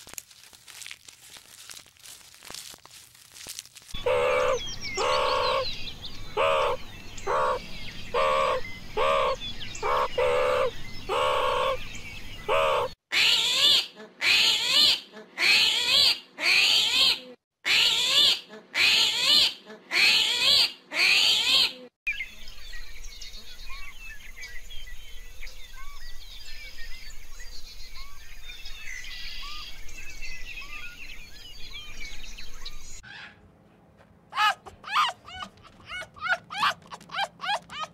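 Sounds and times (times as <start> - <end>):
loud animal calls: 4.0 - 5.7, 6.3 - 11.8, 12.5 - 21.7, 34.4 - 37.9
small faint animal calls: 34.4 - 37.9.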